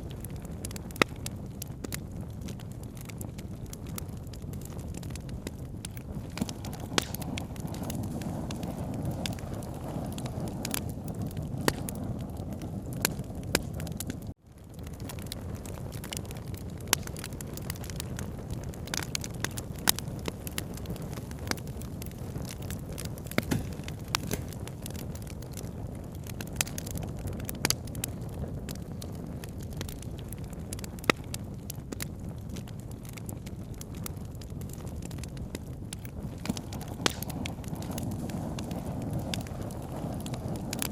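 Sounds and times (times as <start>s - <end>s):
steady low rumble: 0.0s - 14.4s
campfire crackling and popping: 0.0s - 40.9s.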